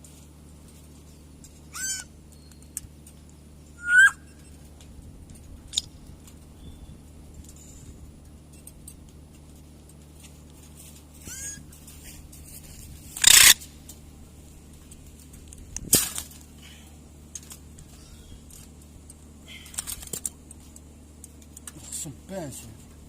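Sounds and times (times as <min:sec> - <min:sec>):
steady low hum: 0:00.0 - 0:23.0
parrot harsh screeches: 0:01.7 - 0:02.1, 0:03.8 - 0:04.2, 0:11.2 - 0:11.6, 0:13.2 - 0:13.6
parrot whistle: 0:03.8 - 0:04.3.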